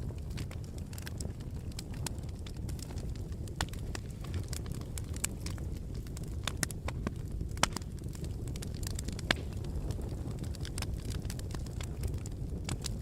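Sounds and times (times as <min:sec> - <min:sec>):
fire crackling and popping: 0:00.0 - 0:13.0
low rumble of flames: 0:00.0 - 0:13.0.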